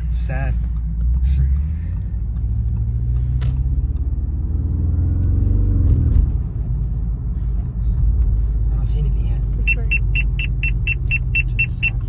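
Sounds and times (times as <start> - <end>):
car engine deep rumble: 0.0 - 12.0.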